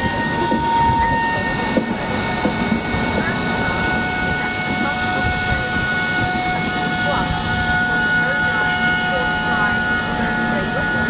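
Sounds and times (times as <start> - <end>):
high steady whines: 0.0 - 11.0
train rumbling: 0.0 - 11.0.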